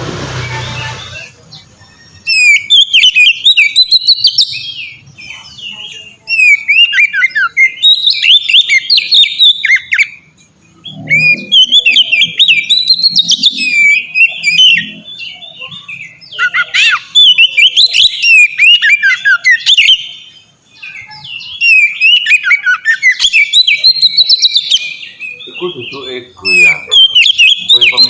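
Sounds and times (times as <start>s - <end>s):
bird singing whistled song: 0.4s - 28.0s.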